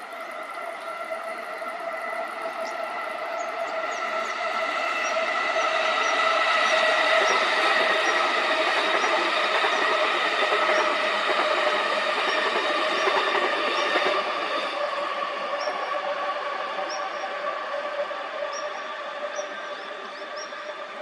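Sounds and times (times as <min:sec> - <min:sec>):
train passing: 0:00.0 - 0:21.0.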